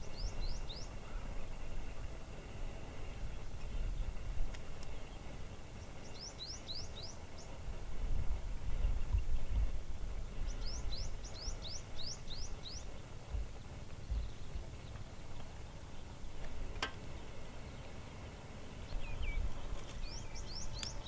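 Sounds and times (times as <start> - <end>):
small bird chirping: 0.0 - 1.7, 4.6 - 7.6, 10.3 - 16.2, 17.0 - 21.0
steady low rumble: 0.0 - 17.6, 18.6 - 21.0.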